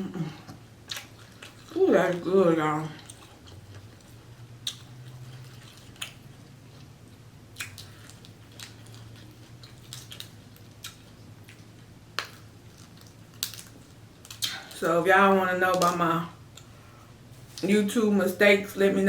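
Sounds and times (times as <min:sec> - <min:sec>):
faint low hum: 0:00.0 - 0:19.0
wet chewing with mouth clicks: 0:00.4 - 0:02.3, 0:02.9 - 0:14.9.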